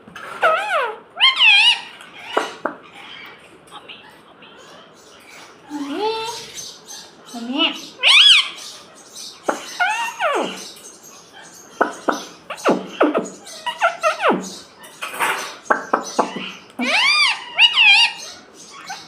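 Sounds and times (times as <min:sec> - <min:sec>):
parakeet chattering and squawking: 0:00.2 - 0:19.0.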